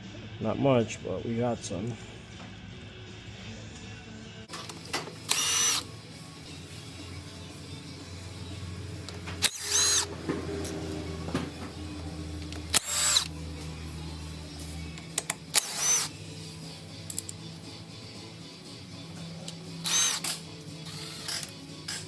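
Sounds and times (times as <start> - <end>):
background music: 0.0 - 22.0
power tool motor whine: 5.3 - 5.8, 9.4 - 10.1, 12.7 - 13.3, 15.6 - 16.1, 19.8 - 20.3, 20.9 - 22.0.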